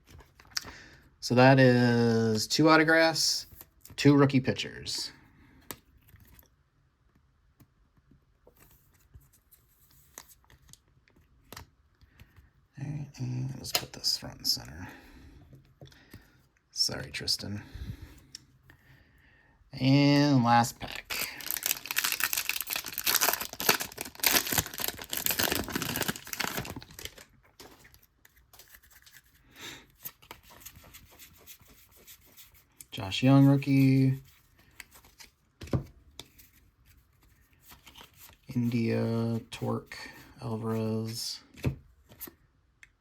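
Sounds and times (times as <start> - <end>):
foil wrapper tearing and crinkling: 20.9 - 27.3
trading cards tapping and rustling: 21.1 - 29.4.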